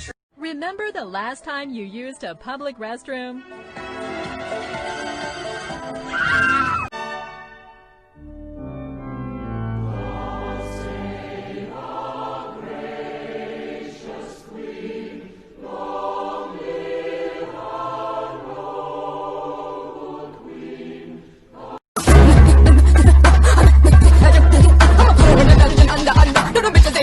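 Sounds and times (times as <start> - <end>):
choir singing held chords: 9.6 - 27.0.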